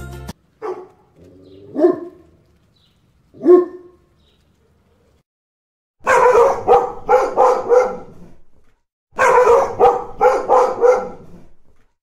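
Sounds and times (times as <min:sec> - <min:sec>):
dog barking: 0:00.6 - 0:01.0, 0:01.7 - 0:02.3, 0:03.4 - 0:04.0, 0:06.0 - 0:08.4, 0:09.2 - 0:11.6.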